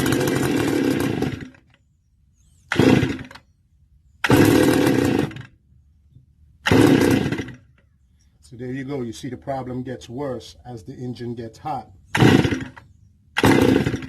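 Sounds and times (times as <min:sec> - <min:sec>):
brush cutter engine sputtering: 0:00.0 - 0:01.8, 0:02.7 - 0:03.5, 0:04.2 - 0:05.5, 0:06.6 - 0:07.8, 0:12.1 - 0:14.0.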